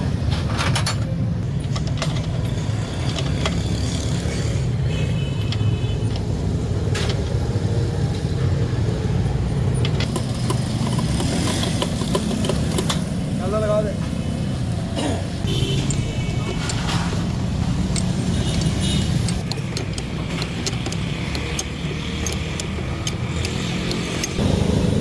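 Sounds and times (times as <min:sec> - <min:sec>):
short metallic clicks: 0:17.9 - 0:24.4.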